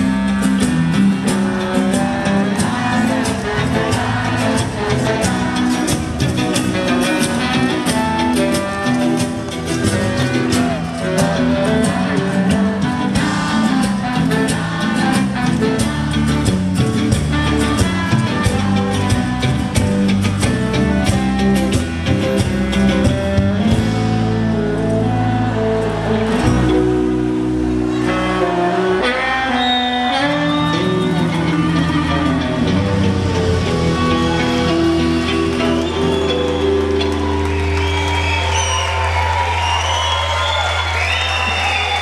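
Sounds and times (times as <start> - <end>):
guitars playing: 0.0 - 42.0.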